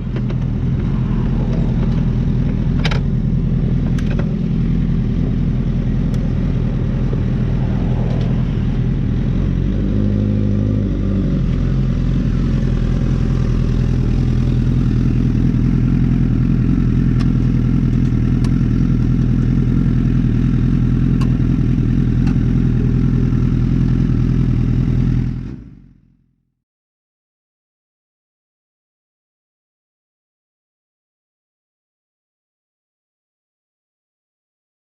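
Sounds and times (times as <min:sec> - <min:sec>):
motorcycle engine running: 0:00.0 - 0:26.2.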